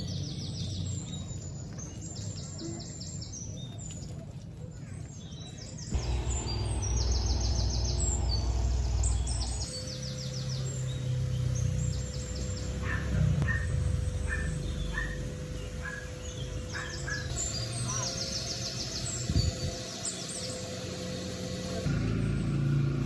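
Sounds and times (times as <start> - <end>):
birds chirping in trills: 4.8 - 21.9.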